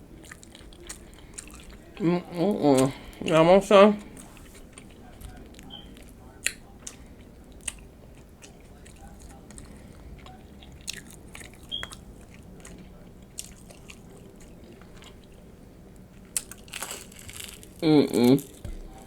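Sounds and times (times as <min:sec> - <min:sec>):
chewing crunchy chips: 0:00.1 - 0:02.0, 0:04.0 - 0:19.0
mouth sounds: 0:17.8 - 0:19.0.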